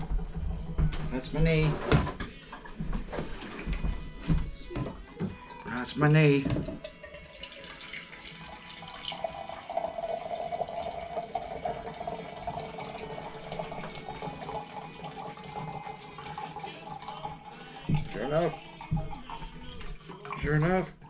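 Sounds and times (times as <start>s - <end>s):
water pouring into a container: 5.7s - 21.0s.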